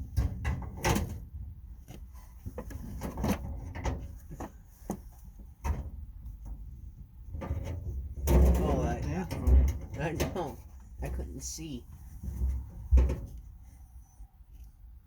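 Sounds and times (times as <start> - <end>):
metal drawer clicks and knocks: 0.1 - 1.2, 7.3 - 10.6, 12.9 - 13.4.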